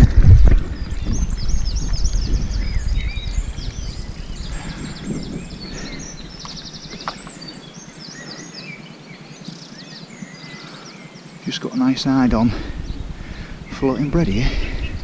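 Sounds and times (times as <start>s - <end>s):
low rumble: 0.0s - 7.0s, 12.0s - 15.0s
songbirds singing: 0.0s - 15.0s.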